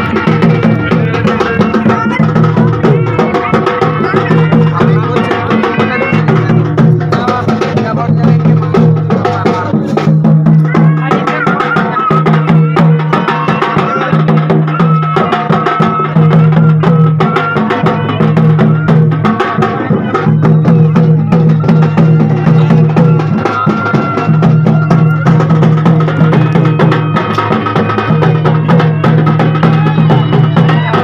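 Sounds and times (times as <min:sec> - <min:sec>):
rapid dense drum strokes: 0:00.0 - 0:31.0.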